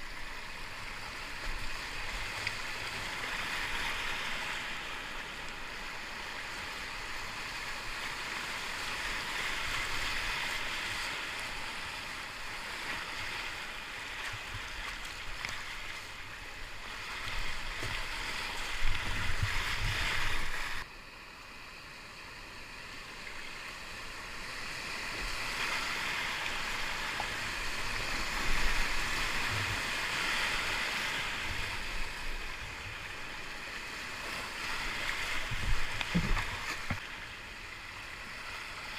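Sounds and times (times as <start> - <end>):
whitewater river rushing: 25.1 - 33.5
low knocks and bumps: 35.5 - 37.0.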